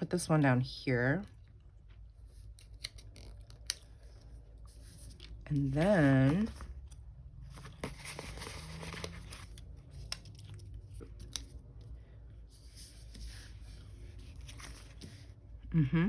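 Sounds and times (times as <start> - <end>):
paper rustling: 2.3 - 6.8, 7.4 - 11.6, 12.5 - 15.3.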